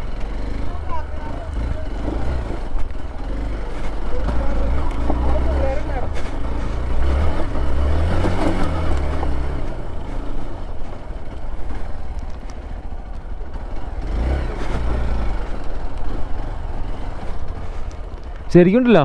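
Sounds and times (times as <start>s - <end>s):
off-road engine revving: 0.0s - 19.0s
clattering and scraping: 2.0s - 12.6s.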